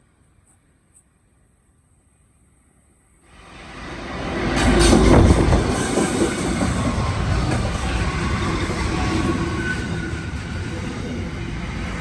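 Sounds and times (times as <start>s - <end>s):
freight train wheels on rails: 3.1s - 12.0s.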